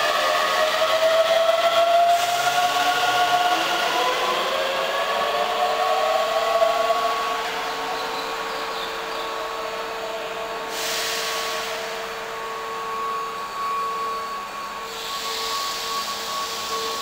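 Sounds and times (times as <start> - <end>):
electric train whine: 0.0 - 17.0
air hissing: 10.7 - 11.9, 14.9 - 17.0.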